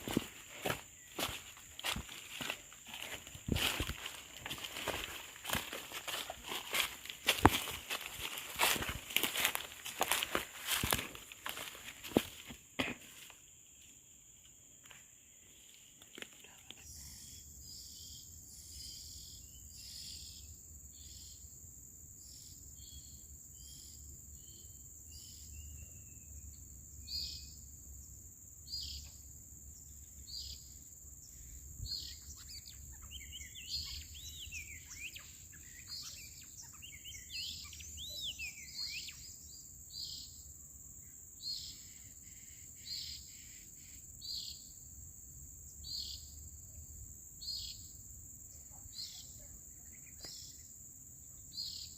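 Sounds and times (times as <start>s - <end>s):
bird calls: 0.0s - 12.4s, 31.5s - 39.4s.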